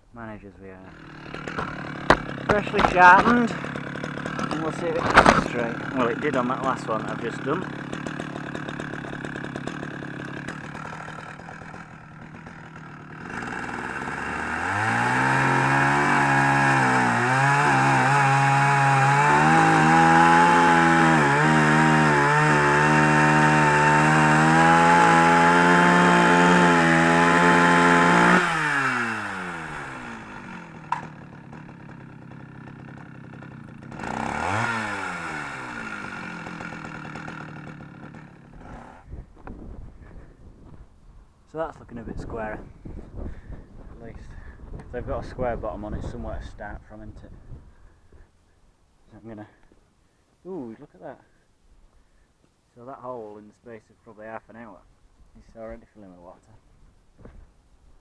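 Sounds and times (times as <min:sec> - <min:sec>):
chainsaw sawing wood: 0:00.6 - 0:40.4.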